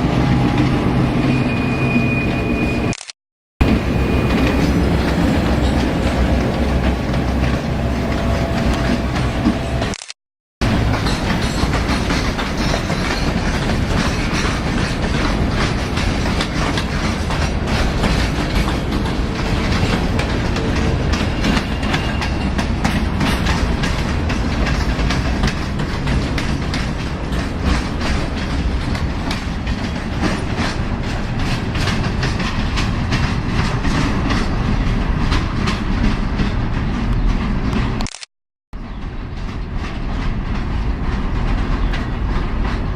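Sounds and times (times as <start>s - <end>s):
train wheels clicking over rail joints: 10.6s - 38.1s, 38.9s - 42.9s.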